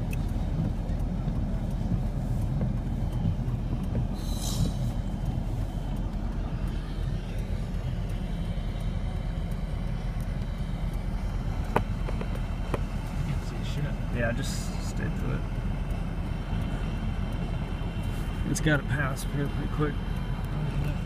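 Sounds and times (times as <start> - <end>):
wind buffeting vehicle cab: 0.0 - 21.0
short hiss: 4.2 - 4.9.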